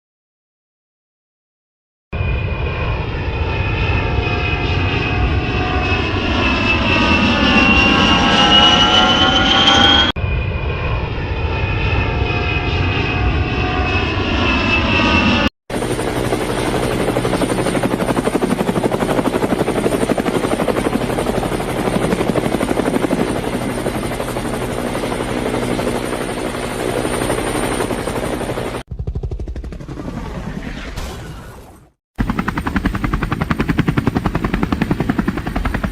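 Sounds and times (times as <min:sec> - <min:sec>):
rising whine: 0:02.2 - 0:15.5
helicopter rotor and engine: 0:02.2 - 0:31.0, 0:31.6 - 0:35.9.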